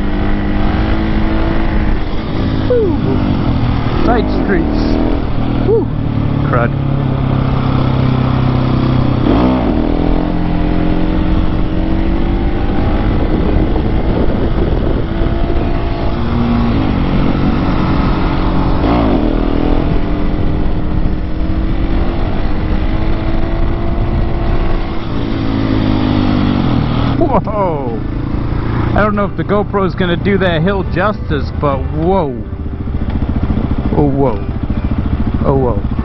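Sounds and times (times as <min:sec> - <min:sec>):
motorcycle engine running: 0:00.0 - 0:36.0
noisy rush: 0:00.0 - 0:36.0.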